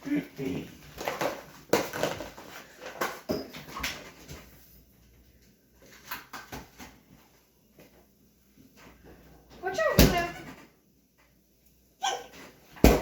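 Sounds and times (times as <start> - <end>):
kitchen knocks and clatter: 1.0 - 4.4.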